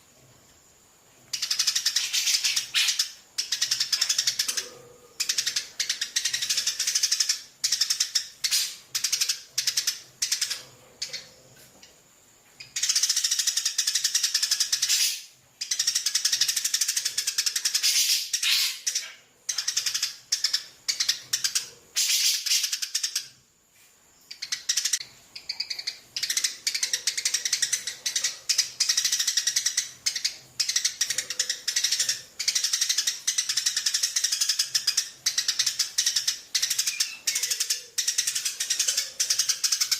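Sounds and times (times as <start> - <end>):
parrot chick begging calls: 17.8 - 19.1.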